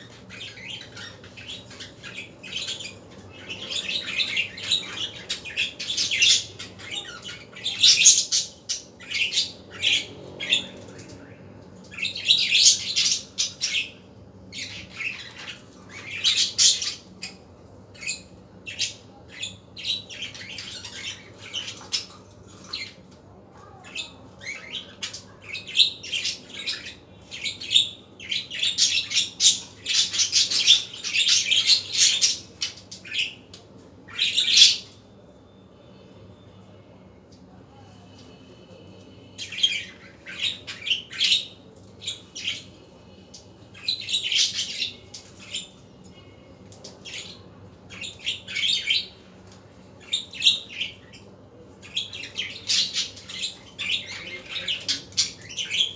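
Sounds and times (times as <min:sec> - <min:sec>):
budgerigars chirping: 0:00.0 - 0:11.0, 0:34.1 - 0:35.0, 0:51.8 - 0:55.9.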